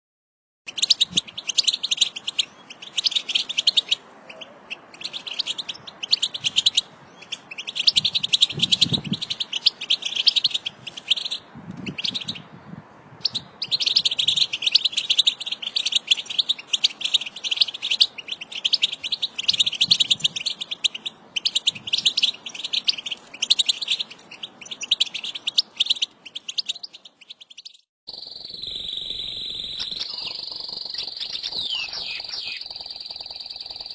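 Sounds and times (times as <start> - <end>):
goldfinches twittering: 28.1 - 33.9.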